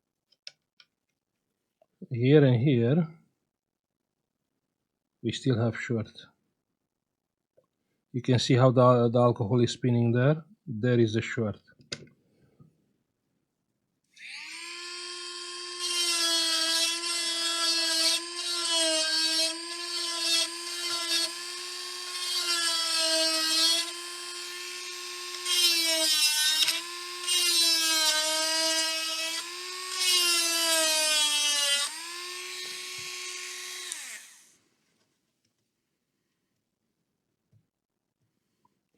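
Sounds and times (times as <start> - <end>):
small electric motor tool whining: 14.2 - 34.6.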